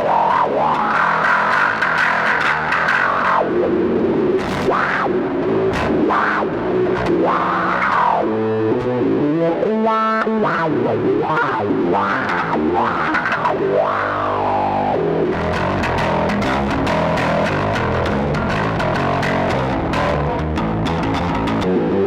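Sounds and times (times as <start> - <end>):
fuzz wah bass guitar: 0.0 - 22.0.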